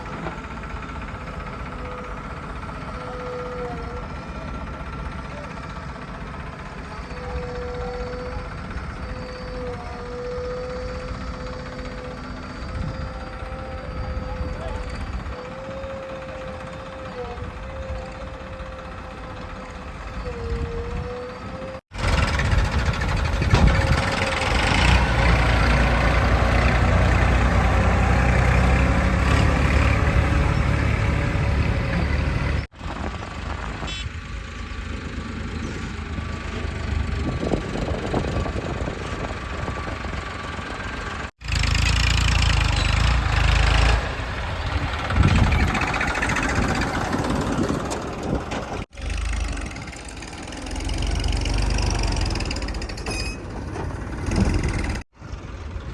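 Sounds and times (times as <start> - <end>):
diesel engine working: 0.0 - 55.9.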